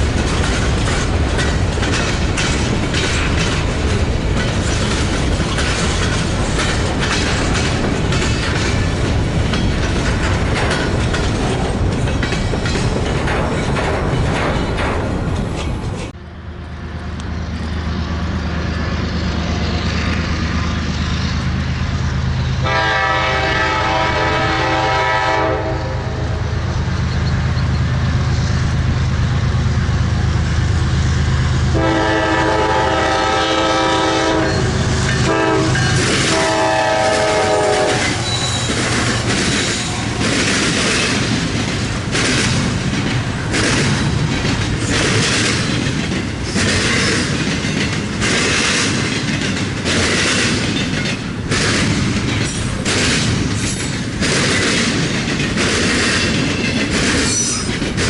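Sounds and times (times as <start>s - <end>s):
locomotive engine drone: 0.0s - 58.0s
train air horn blasts: 22.6s - 26.6s, 31.7s - 38.8s.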